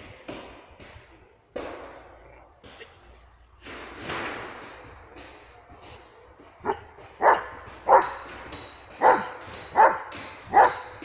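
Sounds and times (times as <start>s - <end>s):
dog barking: 5.9s - 11.0s.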